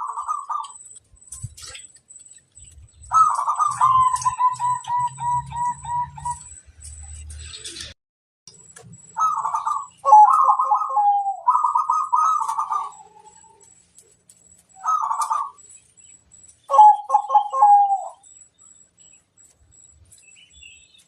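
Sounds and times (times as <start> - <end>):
dove cooing: 0.0 - 0.8, 2.6 - 6.6, 9.1 - 13.9, 14.6 - 15.7, 16.7 - 18.3.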